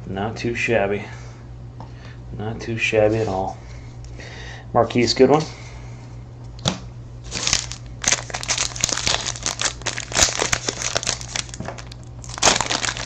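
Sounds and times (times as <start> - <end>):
card pack wrapper crinkling: 7.3 - 13.0.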